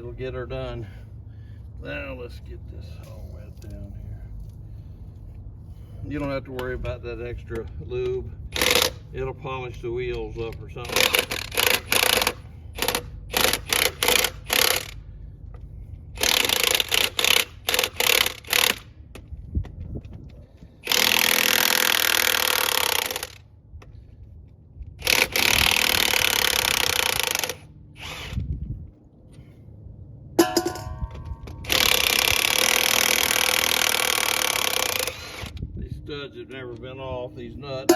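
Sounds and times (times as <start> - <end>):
impact wrench hammering: 8.5 - 9.0, 10.9 - 15.0, 16.2 - 19.2, 20.8 - 23.4, 30.4 - 35.5.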